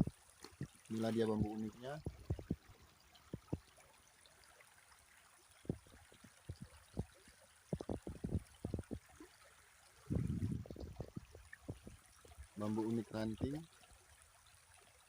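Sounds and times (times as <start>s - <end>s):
dull low thumps and knocks: 0.0s - 3.7s, 5.6s - 9.1s, 10.1s - 12.5s
river water flowing: 0.0s - 15.0s
low rumble: 10.1s - 12.0s.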